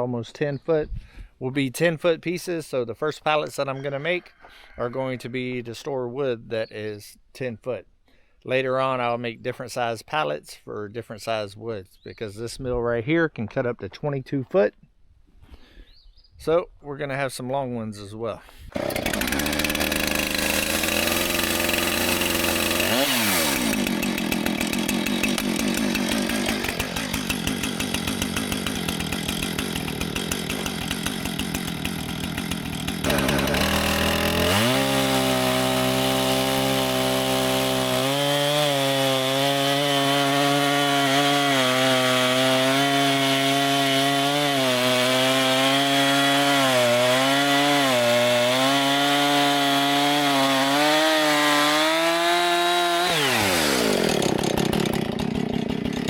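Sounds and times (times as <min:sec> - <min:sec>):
chainsaw cutting log: 0:18.7 - 0:56.0.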